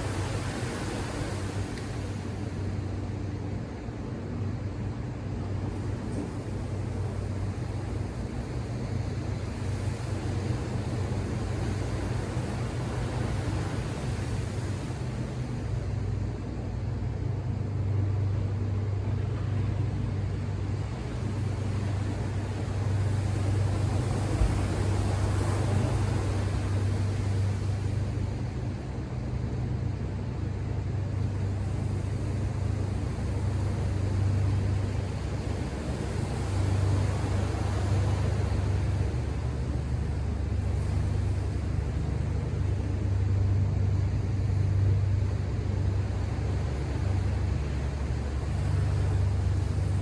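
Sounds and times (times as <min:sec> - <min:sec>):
low mechanical hum: 0:00.0 - 0:50.0
ocean surf washing in: 0:20.7 - 0:29.5, 0:30.6 - 0:50.0.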